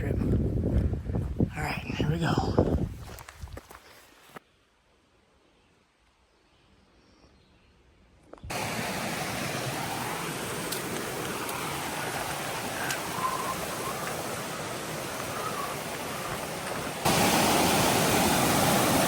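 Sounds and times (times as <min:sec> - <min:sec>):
rush of falling water: 0:08.5 - 0:19.0.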